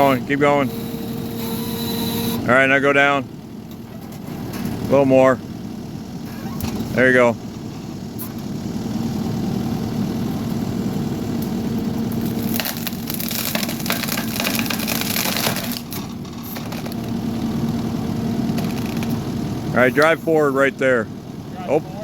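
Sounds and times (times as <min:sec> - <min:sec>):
skid steer engine running: 0:00.0 - 0:22.0
wood cracking and splintering: 0:12.1 - 0:17.2, 0:18.4 - 0:19.3.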